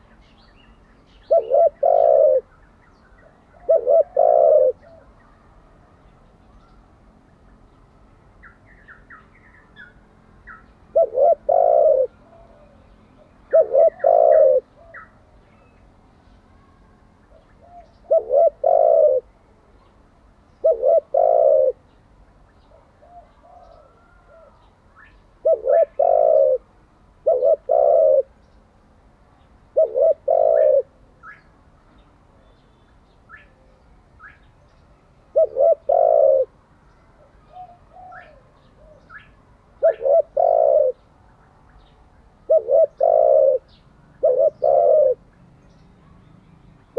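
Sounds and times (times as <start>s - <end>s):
small birds chirping: 0.0s - 5.4s, 6.0s - 26.6s, 27.2s - 46.9s
dove cooing: 1.2s - 2.5s, 3.2s - 5.2s, 10.9s - 15.2s, 17.3s - 19.3s, 20.6s - 21.8s, 22.7s - 24.7s, 25.4s - 28.4s, 29.7s - 30.9s, 35.3s - 36.6s, 37.2s - 41.0s, 42.4s - 45.3s.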